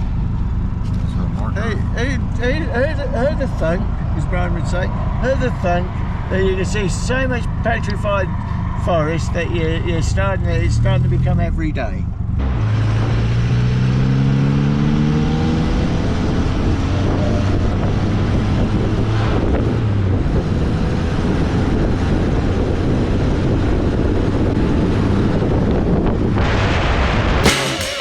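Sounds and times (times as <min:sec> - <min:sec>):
car engine droning: 0:00.0 - 0:26.4
road noise: 0:00.0 - 0:28.0
wind noise: 0:14.9 - 0:27.5.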